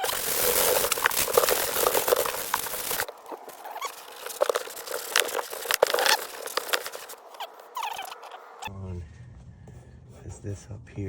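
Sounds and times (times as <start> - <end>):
cloth rustling and scraping: 0.0 - 8.4.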